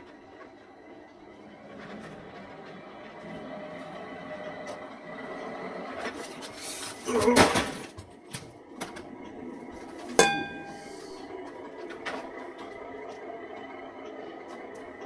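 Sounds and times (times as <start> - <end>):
metallic clang: 10.2 - 11.2.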